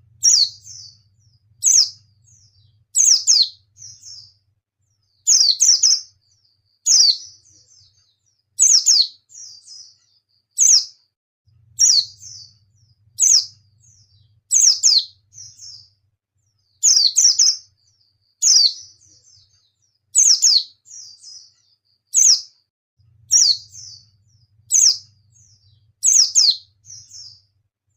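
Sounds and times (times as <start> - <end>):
bird calling: 0.0 - 4.4, 23.3 - 27.4.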